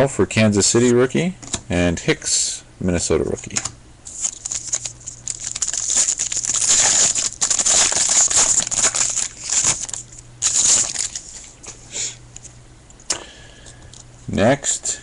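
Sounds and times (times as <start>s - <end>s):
wrapper tearing and crinkling: 4.1s - 11.6s.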